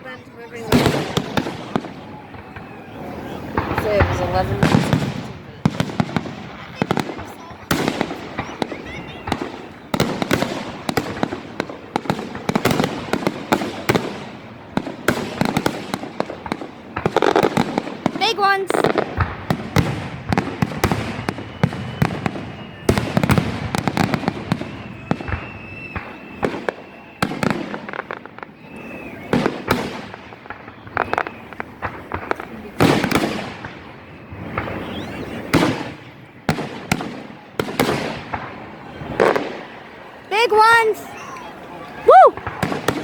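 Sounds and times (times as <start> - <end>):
fireworks bangs: 0.0 - 43.0
fireworks crackle: 0.0 - 43.0
high firework whistle: 20.6 - 31.9, 34.0 - 36.0.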